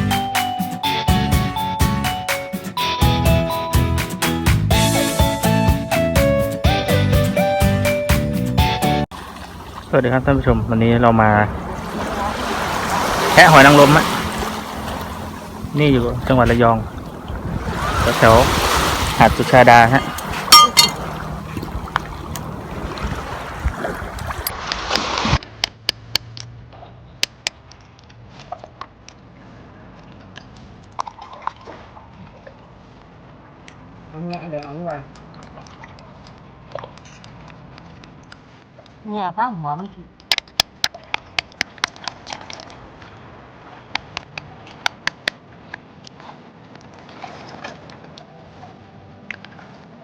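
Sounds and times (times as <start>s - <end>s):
seawater splashing on rocks: 9.1s - 25.4s.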